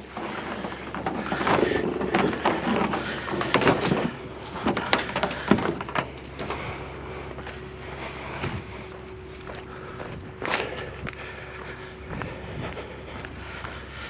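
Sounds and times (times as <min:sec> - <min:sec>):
scrap metal knocking and clattering: 0:00.0 - 0:06.6
footsteps: 0:00.0 - 0:14.0.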